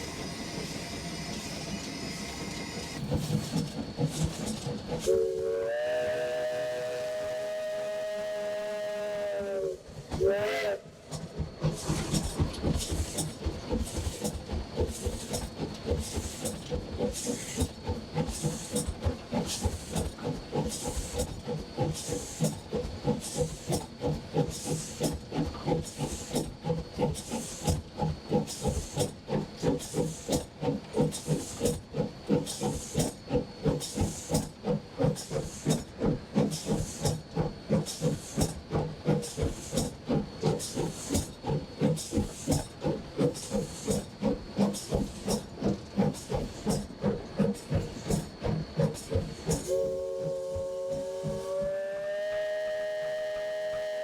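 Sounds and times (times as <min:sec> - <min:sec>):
hissing steam: 0:00.0 - 0:54.0
steam locomotive chuffing: 0:00.0 - 0:54.0
steam whistle blast: 0:05.0 - 0:11.0, 0:49.6 - 0:54.0.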